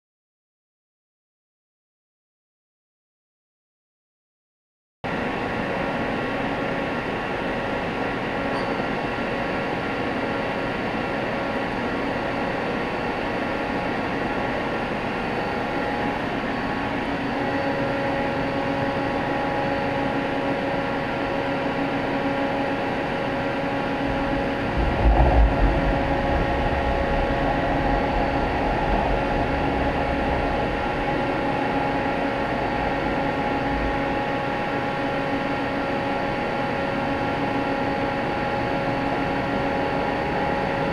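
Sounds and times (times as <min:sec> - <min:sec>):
machining center humming and whining: 0:05.1 - 0:40.9
low rumble: 0:23.8 - 0:34.6.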